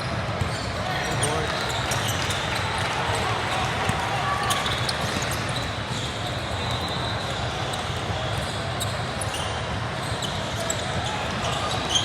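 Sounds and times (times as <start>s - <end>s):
basketball bouncing on court: 0.1s - 2.9s, 3.7s - 5.6s
shoe squeaks: 0.4s - 2.5s, 4.4s - 12.0s.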